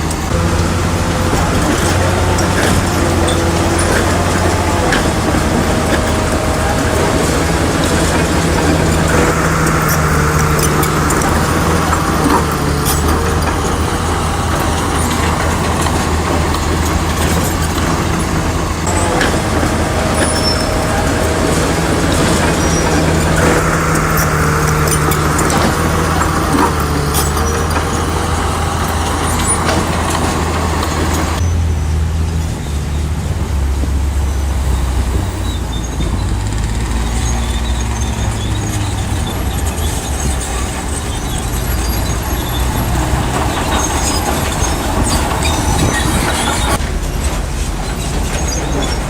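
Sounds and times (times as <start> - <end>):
sharp metallic clanks: 0.0 - 31.6
bulldozer diesel engine: 0.0 - 49.0.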